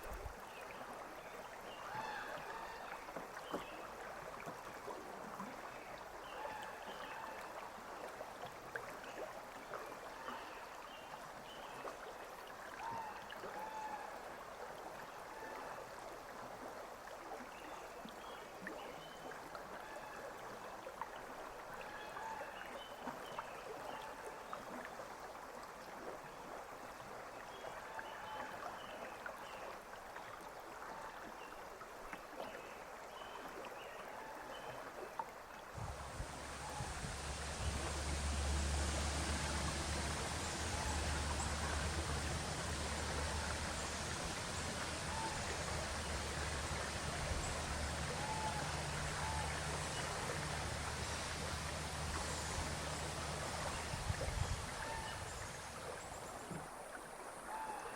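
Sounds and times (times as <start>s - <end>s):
river water running over shallow bed: 0.0s - 57.9s
water bubbling and gurgling: 34.9s - 57.9s.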